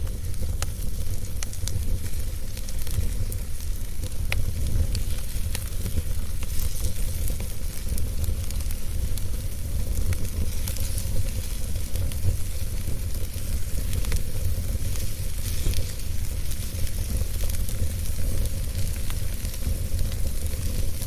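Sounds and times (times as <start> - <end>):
fire crackling and popping: 0.0 - 21.0
fire rumbling and hissing: 0.0 - 21.0.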